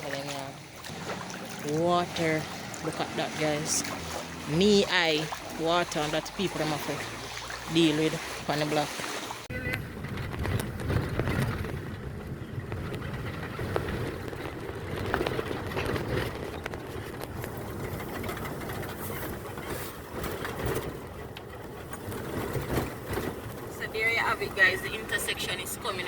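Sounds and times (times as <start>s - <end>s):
road noise: 0.0s - 26.0s
vehicle engine running: 9.5s - 26.0s.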